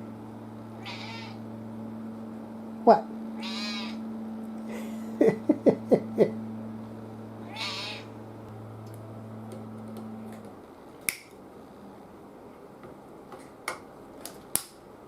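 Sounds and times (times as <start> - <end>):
cat meowing: 0.8 - 1.4, 3.4 - 4.0, 7.4 - 8.1.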